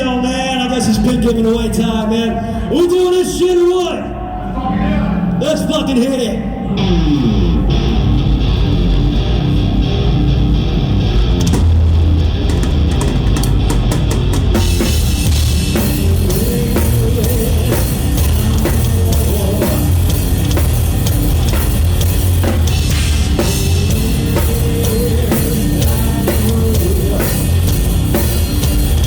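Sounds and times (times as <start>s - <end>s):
rock band playing live: 5.2s - 29.0s
drum kit beat: 11.3s - 29.0s.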